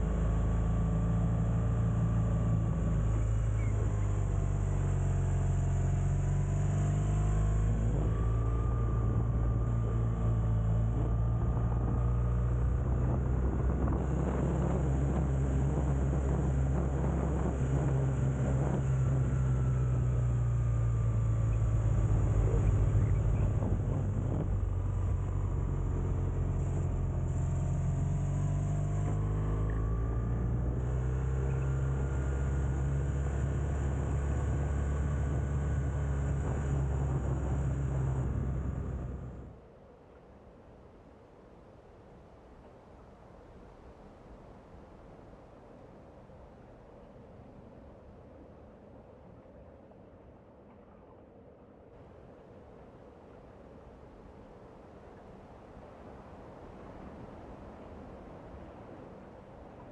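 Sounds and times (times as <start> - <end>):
wind noise: 0.0 - 39.5
motorcycle engine humming: 0.0 - 39.6
road noise: 0.0 - 39.6.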